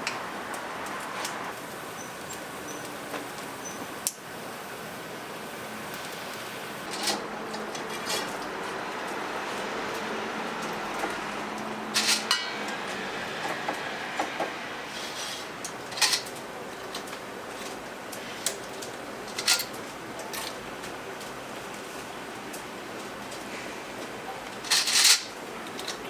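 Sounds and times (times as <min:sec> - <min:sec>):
steady background hiss: 0:00.0 - 0:26.0
utensils and dishes clinking: 0:06.8 - 0:09.1, 0:10.6 - 0:21.3, 0:22.6 - 0:26.0.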